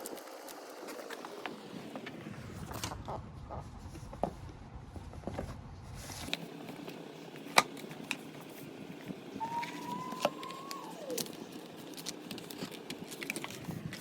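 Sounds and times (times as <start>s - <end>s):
packaging clicks and taps: 9.6s - 14.0s.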